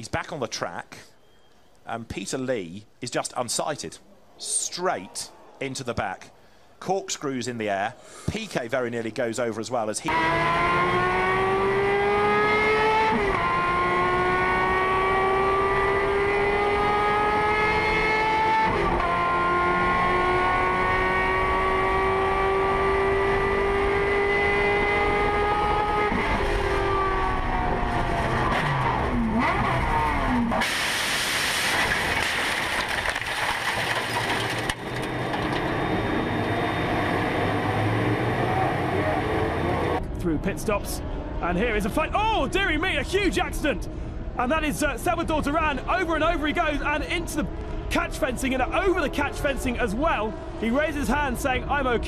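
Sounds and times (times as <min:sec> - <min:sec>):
race car engine revving: 0:10.1 - 0:40.2.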